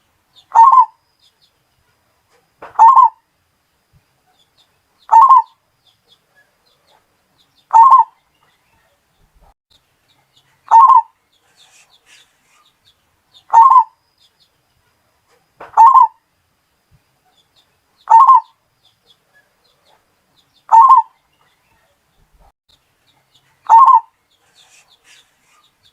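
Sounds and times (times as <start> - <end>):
dove cooing: 0.5 - 1.0, 2.7 - 3.2, 5.1 - 5.5, 7.7 - 8.1, 10.6 - 12.2, 13.5 - 13.9, 15.7 - 16.2, 18.1 - 18.5, 20.7 - 21.1, 23.7 - 25.6.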